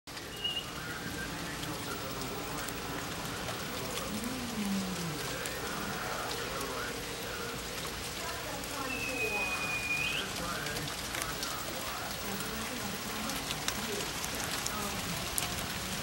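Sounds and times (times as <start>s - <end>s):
steady rain: 0.1s - 16.0s.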